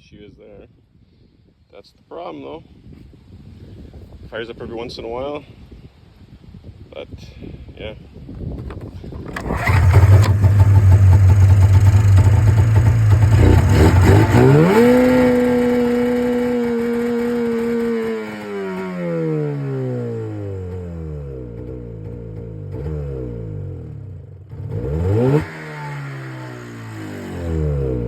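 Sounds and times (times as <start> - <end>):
snowmobile engine idling and revving: 8.7 - 28.0.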